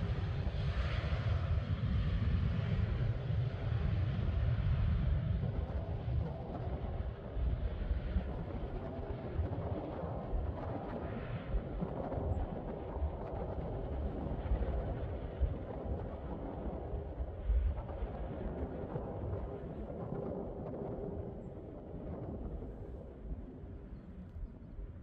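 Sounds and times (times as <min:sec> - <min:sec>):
distant jet engines roaring: 0:00.0 - 0:25.0
wind buffeting microphone: 0:00.0 - 0:25.0.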